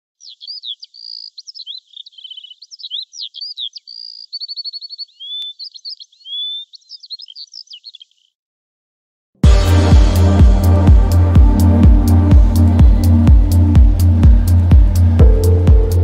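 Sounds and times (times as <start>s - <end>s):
songbird singing: 0.0s - 8.4s.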